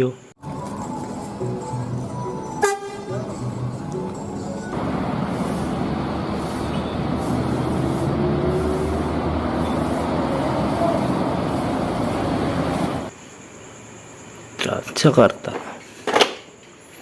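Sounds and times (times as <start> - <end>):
vehicle engine and tyre noise: 2.9 - 13.2.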